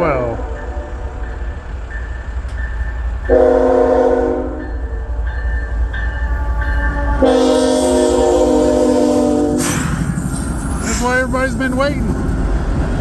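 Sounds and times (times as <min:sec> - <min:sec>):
locomotive air horn blasts: 0:03.3 - 0:04.6, 0:06.5 - 0:10.0.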